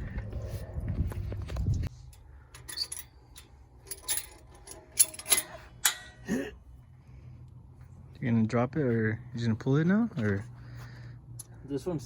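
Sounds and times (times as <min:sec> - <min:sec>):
metallic clinks and clanks: 0:02.1 - 0:06.4.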